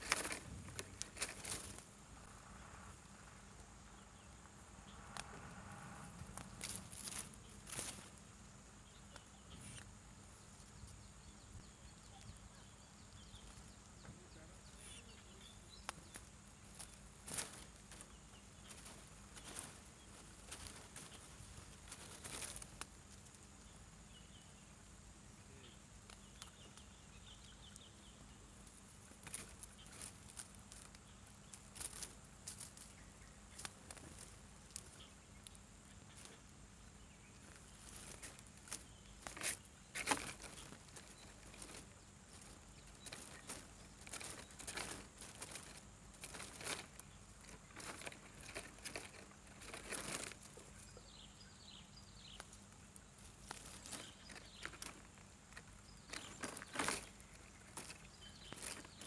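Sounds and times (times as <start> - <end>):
rustling and crackling: 0.0 - 11.2, 13.0 - 59.0
faint high chirps: 10.7 - 16.2.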